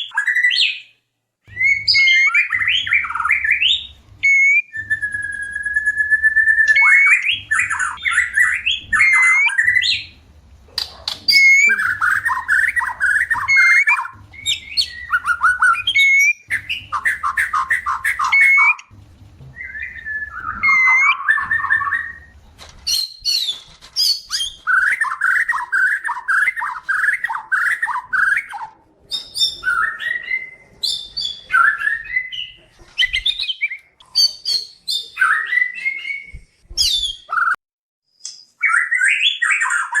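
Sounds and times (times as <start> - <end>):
high whistled bird notes: 1.5 - 10.2, 11.2 - 18.9, 19.6 - 22.3, 22.9 - 37.6
bird singing chattering phrases: 10.8 - 18.9.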